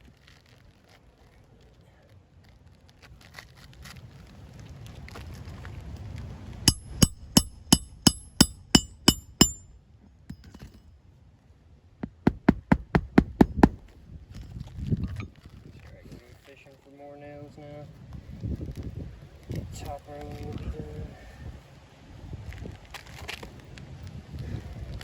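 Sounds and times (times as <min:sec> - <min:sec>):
hammer driving nails: 0:06.7 - 0:09.6, 0:12.0 - 0:13.9.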